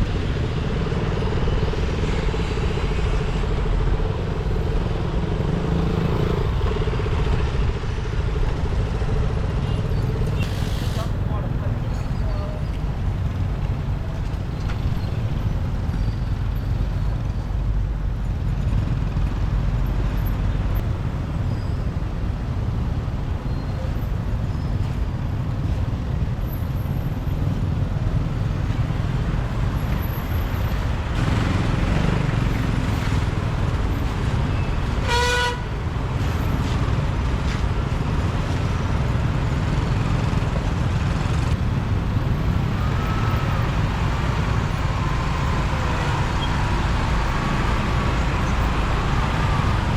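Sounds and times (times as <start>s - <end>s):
motorbike engine and road rumble: 0.0s - 49.9s
vehicle horn toot: 34.5s - 35.7s.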